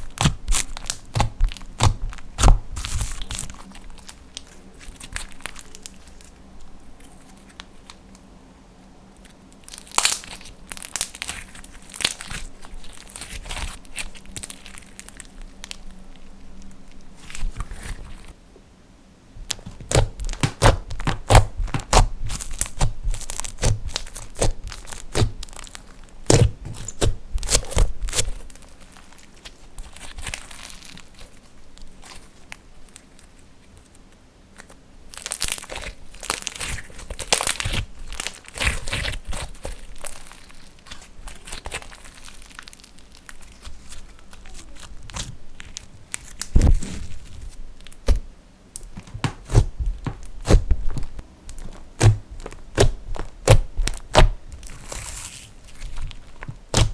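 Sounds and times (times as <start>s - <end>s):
slime clicking and popping: 0.2s - 3.4s, 48.8s - 54.4s
soft rustling: 37.8s - 53.8s.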